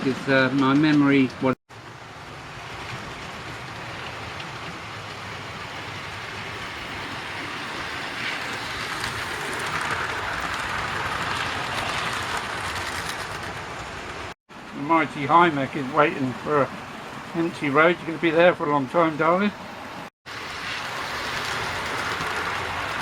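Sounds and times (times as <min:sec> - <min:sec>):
model train whirring on track: 0:00.4 - 0:14.4, 0:20.3 - 0:23.0.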